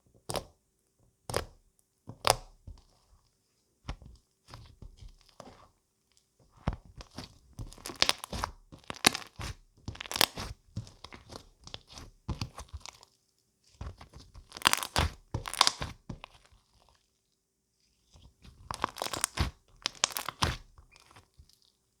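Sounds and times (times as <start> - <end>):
crunching and crackling: 14.4 - 16.5, 18.7 - 21.3.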